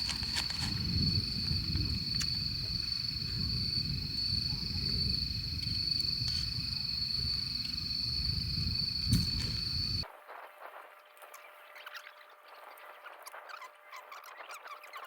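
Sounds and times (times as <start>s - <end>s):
faint clicks: 0.0s - 10.0s
wind buffeting microphone: 0.0s - 10.0s.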